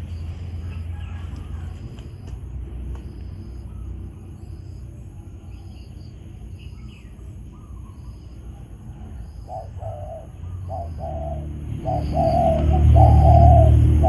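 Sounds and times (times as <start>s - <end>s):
dove cooing: 7.6s - 14.0s.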